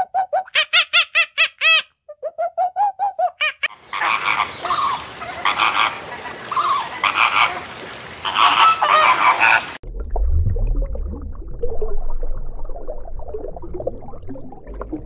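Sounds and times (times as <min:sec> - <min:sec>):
monkey squeaky calls: 0:00.0 - 0:03.7
flamingos honking: 0:03.3 - 0:09.8.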